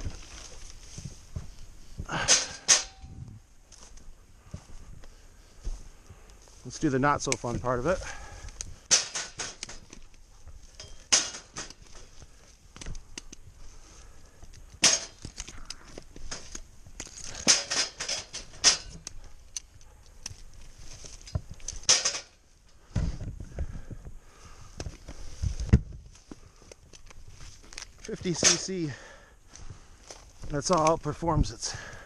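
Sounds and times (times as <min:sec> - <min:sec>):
sharp snaps and crackles: 0:06.0 - 0:28.8, 0:29.5 - 0:32.0.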